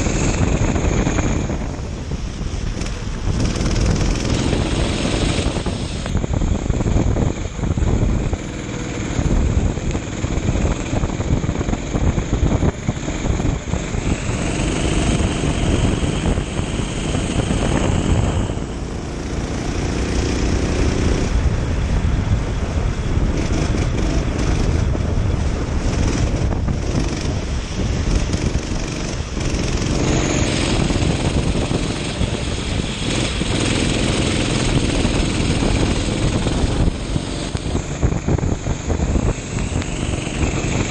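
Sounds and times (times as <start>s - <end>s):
wind buffeting microphone: 0.0s - 40.9s
kart engine revving: 2.5s - 6.2s, 8.2s - 21.4s, 23.2s - 40.9s.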